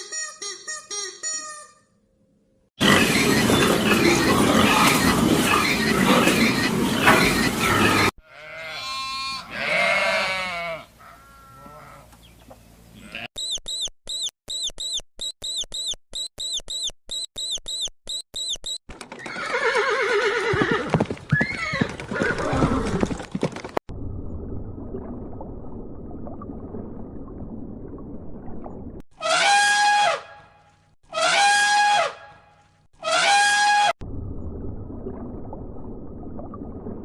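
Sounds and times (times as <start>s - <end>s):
short high chirps: 13.4s - 18.8s.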